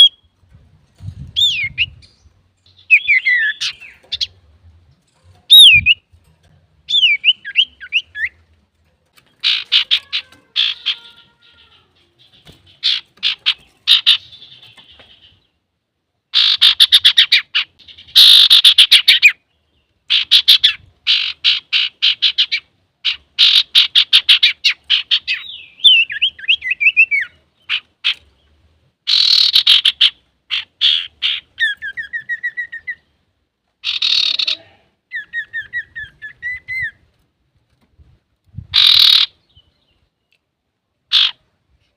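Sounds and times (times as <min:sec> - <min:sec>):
bird chattering trills: 0:09.4 - 0:15.4, 0:16.3 - 0:19.4, 0:29.1 - 0:33.0, 0:33.8 - 0:36.9, 0:38.7 - 0:39.6, 0:41.1 - 0:41.4.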